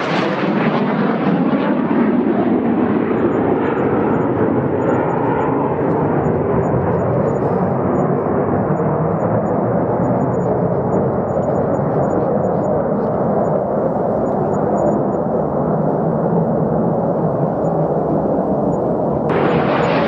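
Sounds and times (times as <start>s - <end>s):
jet engine rumble: 0.0s - 20.0s.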